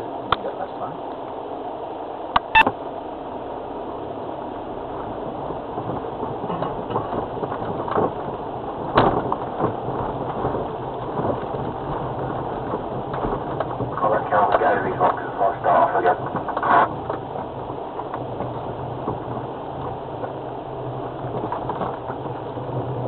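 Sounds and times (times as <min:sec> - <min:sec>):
vehicle engine and tyre noise: 0:00.0 - 0:23.0
vehicle knocks and bumps: 0:05.4 - 0:15.2, 0:16.1 - 0:23.0.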